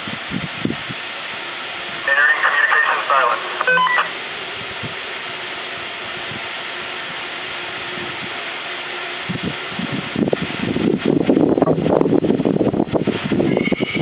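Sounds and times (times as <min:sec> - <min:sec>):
faint hum: 0:01.9 - 0:10.3.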